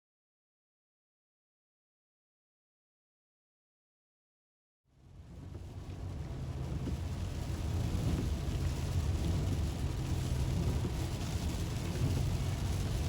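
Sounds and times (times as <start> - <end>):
car driving along road: 5.0 - 13.0.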